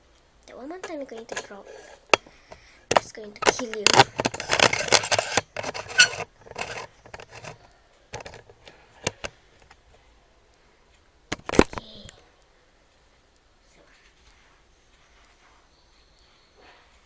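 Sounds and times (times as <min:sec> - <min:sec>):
scattered clicks: 0:00.1 - 0:09.8
rustling and scraping handling noise: 0:00.5 - 0:10.0.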